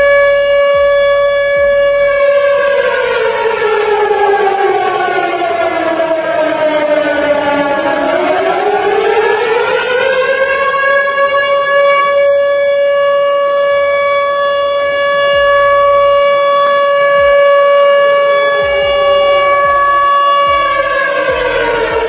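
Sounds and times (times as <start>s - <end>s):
warning siren wailing: 0.0s - 22.0s.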